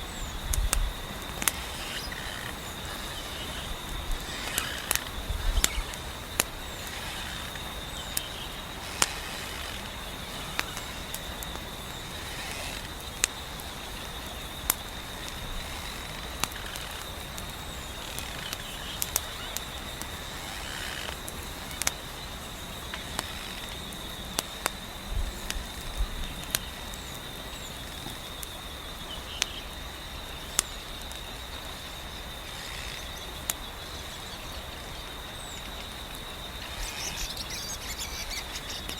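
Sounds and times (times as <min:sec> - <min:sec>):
wood fire crackling: 0:00.0 - 0:27.2
continuous high trill: 0:00.0 - 0:27.9.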